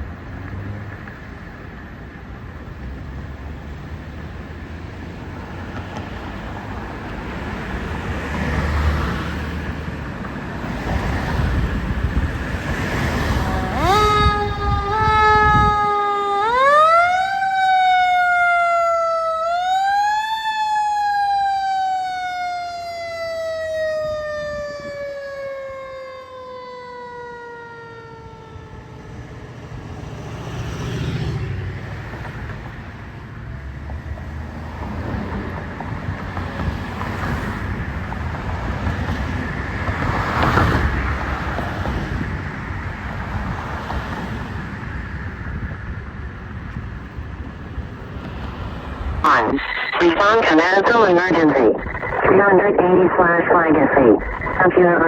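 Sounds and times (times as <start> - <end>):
traffic rumble: 0.0 - 55.0
mechanical siren wailing: 13.2 - 29.7.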